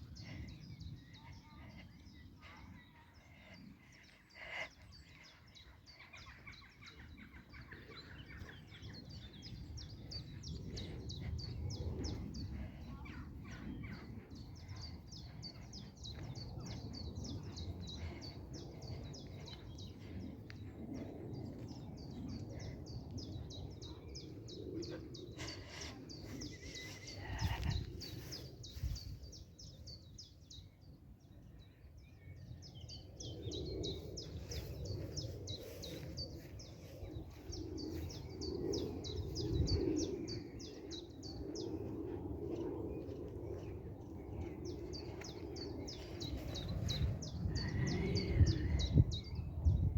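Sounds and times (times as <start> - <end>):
low outdoor rumble: 0.0 - 30.1
small birds chirping: 0.0 - 49.9.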